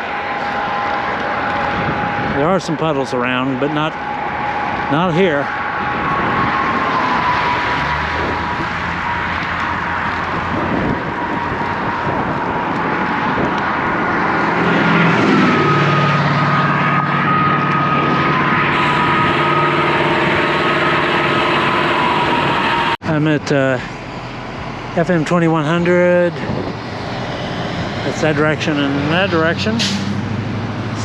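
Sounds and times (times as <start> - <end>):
highway traffic passing: 0.0 - 31.0
vehicle engine hum: 0.0 - 31.0
wind on microphone: 0.5 - 2.9, 5.5 - 22.9, 26.3 - 29.3.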